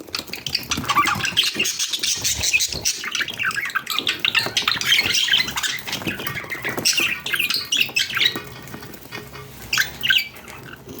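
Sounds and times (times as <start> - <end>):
budgerigars chirping: 0.0 - 11.0.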